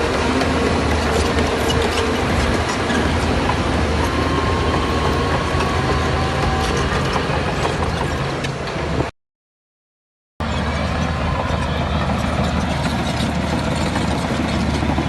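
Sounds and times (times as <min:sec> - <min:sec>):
steel tracks clanking: 0:00.0 - 0:09.1, 0:10.4 - 0:15.0
diesel engine running: 0:10.4 - 0:15.0.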